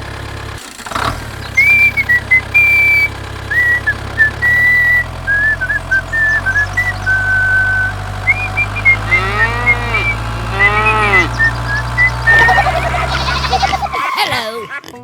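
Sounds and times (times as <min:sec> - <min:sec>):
low engine-like hum: 0:00.0 - 0:14.0
person whistling a tune: 0:01.6 - 0:12.7.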